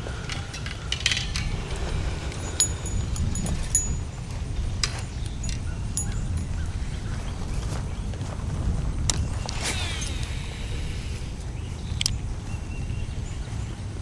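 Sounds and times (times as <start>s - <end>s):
light clicks and clinks: 0.0s - 7.8s
wind rumbling on microphone: 0.0s - 14.0s.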